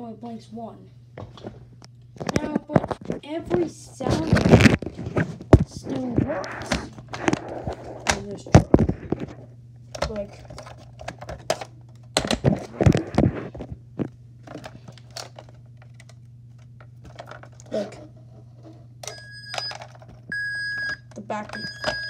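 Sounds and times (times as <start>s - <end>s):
toy truck backing-up beeps: 19.0s - 22.0s.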